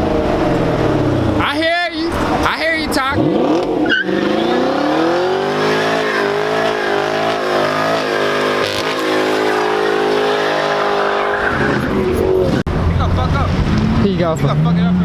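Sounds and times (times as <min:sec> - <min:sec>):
tyres squealing: 0:02.0 - 0:12.6
car engine revving hard: 0:03.0 - 0:15.0.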